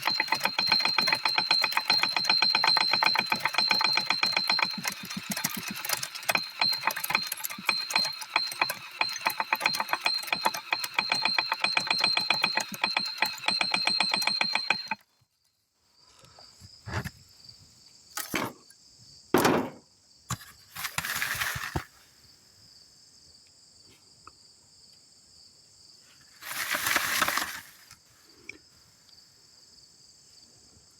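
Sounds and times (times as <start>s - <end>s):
grinder clattering: 0.0s - 15.0s, 20.8s - 21.9s, 26.4s - 27.8s
noisy rustles and knocks: 19.4s - 22.0s
crickets chirping: 19.9s - 30.9s.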